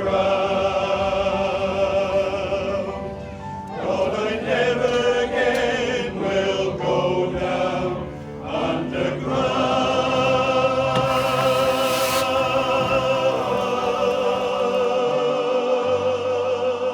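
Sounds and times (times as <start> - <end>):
choir singing: 3.9 - 16.8.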